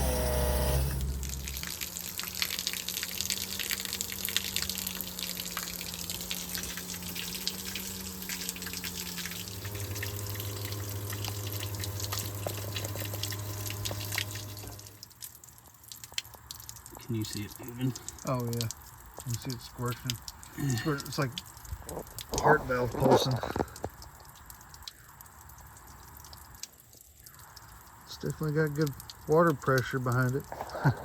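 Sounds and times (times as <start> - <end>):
steady low hum: 0.0 - 15.0
water squirting through leaking seam: 0.0 - 31.0.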